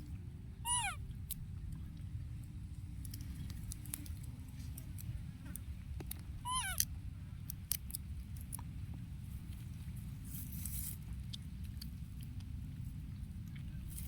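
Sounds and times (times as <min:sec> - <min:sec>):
young animal crying: 0:00.6 - 0:01.0, 0:06.4 - 0:06.8.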